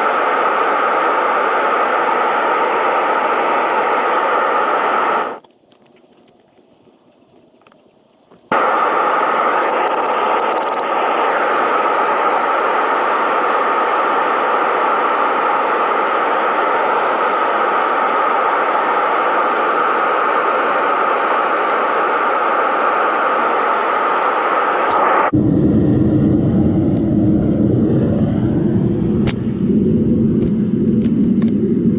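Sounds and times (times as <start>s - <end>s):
furnace burner rushing: 0.0s - 5.4s, 8.5s - 31.9s
low rumble: 25.3s - 31.9s.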